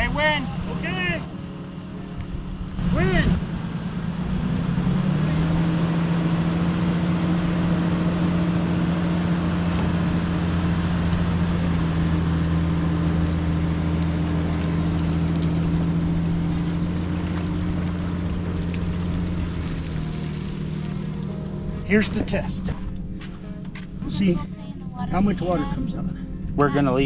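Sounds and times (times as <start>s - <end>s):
motorboat engine running: 0.0s - 27.0s
water rushing: 2.7s - 22.9s.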